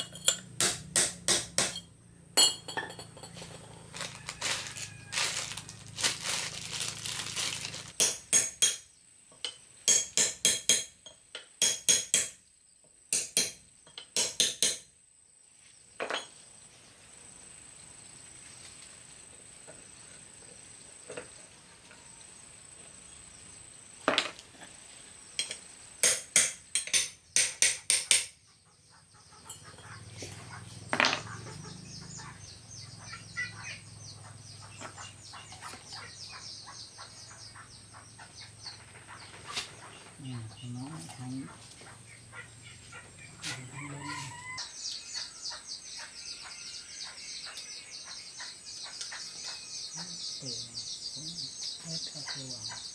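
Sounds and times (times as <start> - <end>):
hammer strikes on steel: 0.0 - 2.7, 8.0 - 8.9, 9.9 - 12.4, 13.2 - 13.6, 14.2 - 14.9, 26.0 - 28.4.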